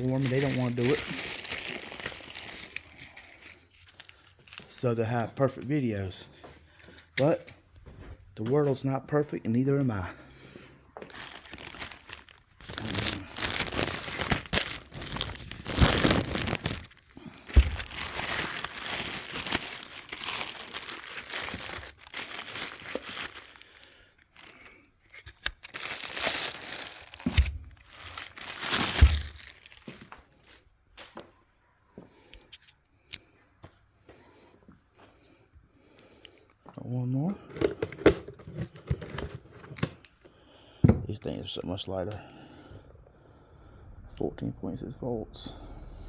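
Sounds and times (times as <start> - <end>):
packing material tearing and crumpling: 0.0 - 4.8, 11.1 - 30.6
handling sounds: 24.4 - 31.4.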